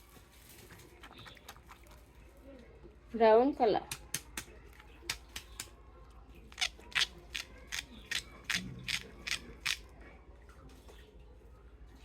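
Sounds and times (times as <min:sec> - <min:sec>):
plastic toys clicking and snapping: 0:03.9 - 0:09.9.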